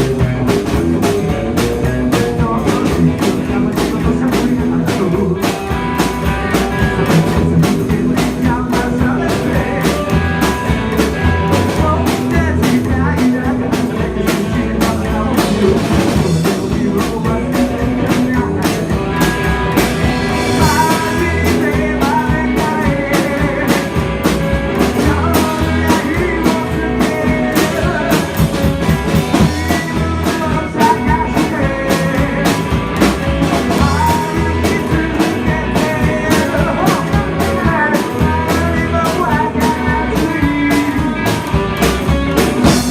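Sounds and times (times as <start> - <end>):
drums: 0.0 - 42.9
electric guitar: 0.0 - 42.9
person singing: 0.0 - 42.9.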